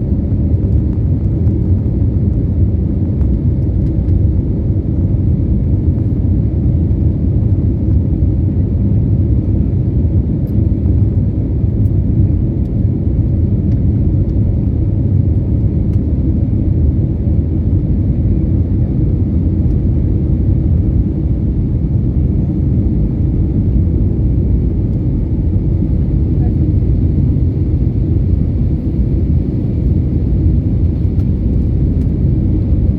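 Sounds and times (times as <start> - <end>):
airliner cabin rumble: 0.0 - 32.9.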